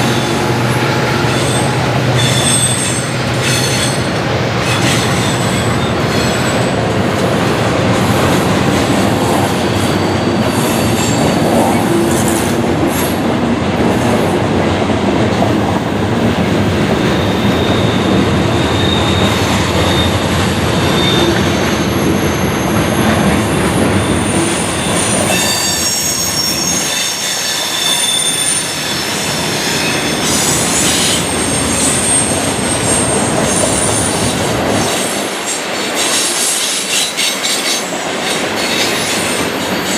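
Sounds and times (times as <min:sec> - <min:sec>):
freight train cars rolling: 0:00.0 - 0:39.9
high-pitched wheel squeals: 0:01.2 - 0:06.8, 0:09.4 - 0:11.5, 0:17.1 - 0:34.2.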